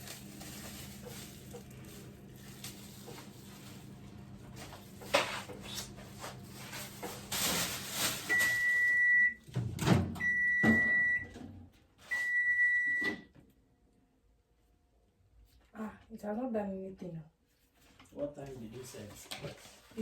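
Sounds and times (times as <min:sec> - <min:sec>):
microwave oven beeping: 0:08.2 - 0:13.4.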